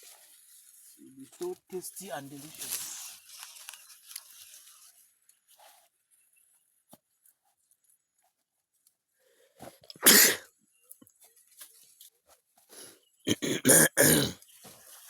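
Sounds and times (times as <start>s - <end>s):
person sneezing: 10.0s - 10.4s, 13.3s - 14.4s.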